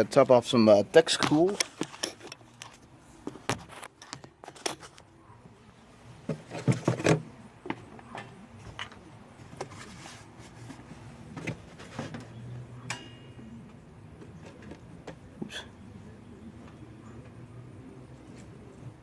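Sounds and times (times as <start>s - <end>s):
plastic jug clinks and knocks: 6.3s - 7.3s.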